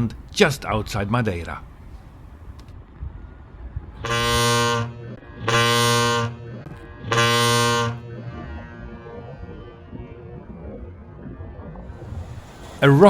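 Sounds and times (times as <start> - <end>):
ship's horn blasts: 4.0 - 9.4.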